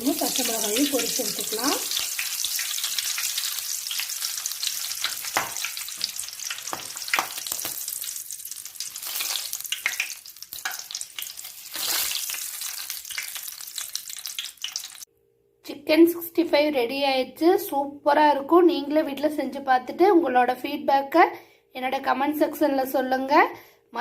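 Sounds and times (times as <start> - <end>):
leaves and chillies frying in oil: 0.0 - 15.1
crackles and pops: 1.0 - 15.1.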